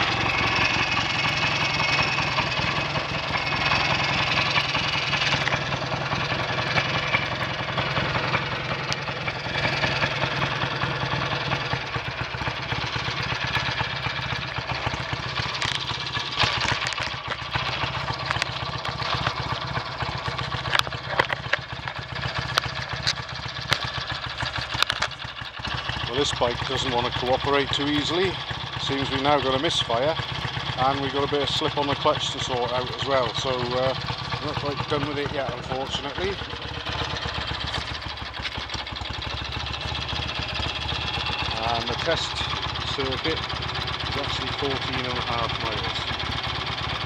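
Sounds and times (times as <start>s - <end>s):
motorcycle engine misfiring: 0.0s - 47.0s
sharp clicks: 15.5s - 19.6s, 20.2s - 25.3s.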